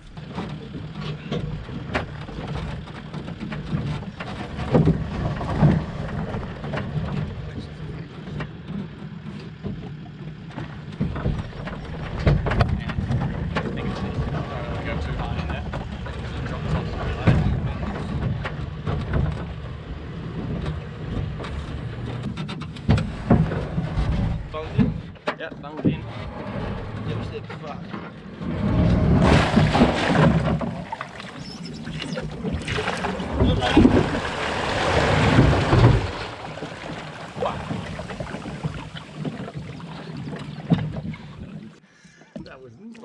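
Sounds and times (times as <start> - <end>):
knocks on boat: 0.0 - 7.6, 10.5 - 14.4, 28.4 - 41.7
water sloshing: 0.0 - 17.7, 28.5 - 43.0
vehicle engine rumbling: 0.0 - 42.7
loud water splashing: 29.1 - 41.8.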